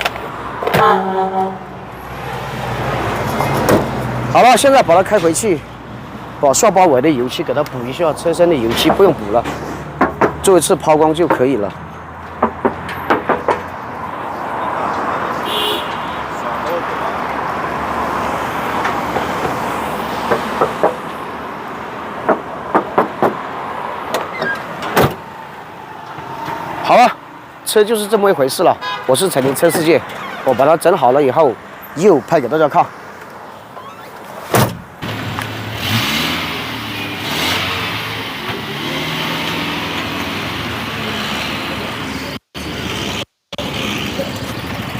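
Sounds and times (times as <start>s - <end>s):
sharp clicks and knocks: 11.2s - 13.7s, 20.2s - 21.2s, 22.2s - 23.4s.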